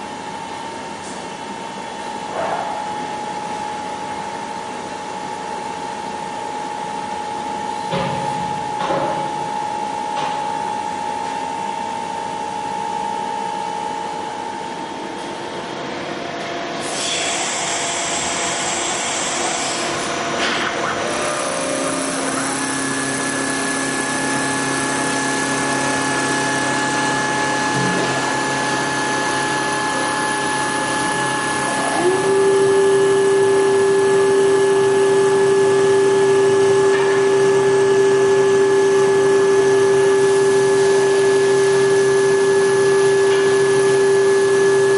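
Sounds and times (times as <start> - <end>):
lathe motor whines: 16.7 - 44.9
motor whine gliding up: 20.8 - 44.9.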